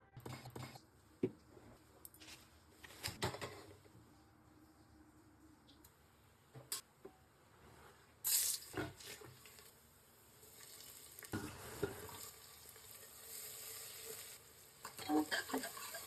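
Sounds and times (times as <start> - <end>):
food sizzling in hot oil: 8.2 - 9.7, 10.3 - 16.0.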